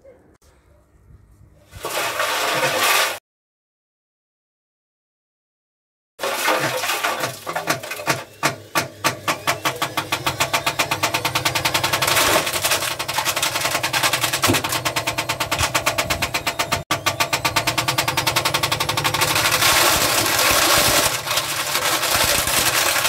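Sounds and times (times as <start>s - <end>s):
washing machine knocking: 7.2s - 19.6s.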